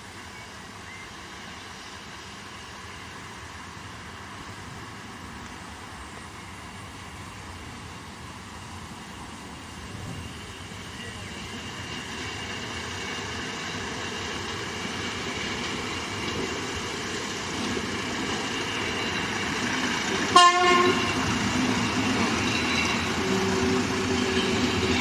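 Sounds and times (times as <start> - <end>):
steam train running: 0.0 - 25.0
steam train whistle toot: 20.3 - 21.2.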